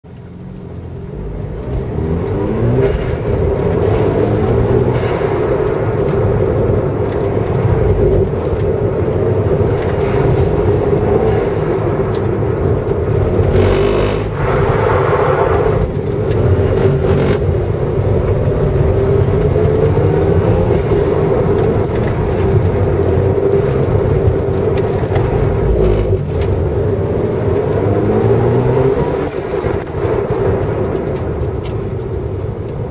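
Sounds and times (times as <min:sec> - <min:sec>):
car engine revving: 0:00.2 - 0:32.3
rush of noise: 0:01.7 - 0:32.1.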